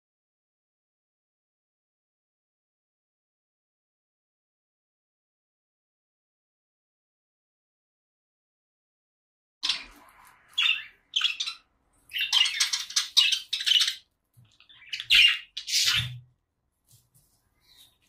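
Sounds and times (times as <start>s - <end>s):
parrot squawking: 9.6s - 14.0s, 14.7s - 16.2s.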